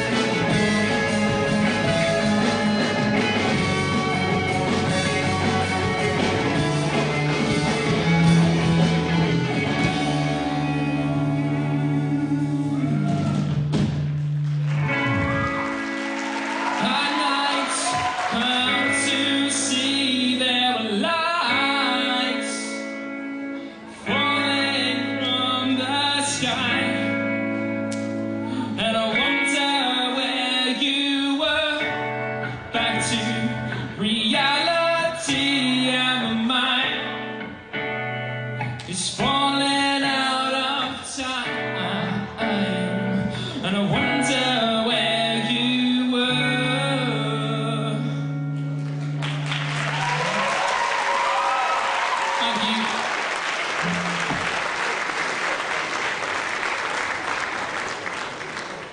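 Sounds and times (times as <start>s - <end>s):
guitar: 0.0s - 58.9s
man singing: 16.8s - 23.0s, 23.9s - 27.4s, 28.5s - 37.4s, 38.6s - 48.6s, 52.3s - 53.1s.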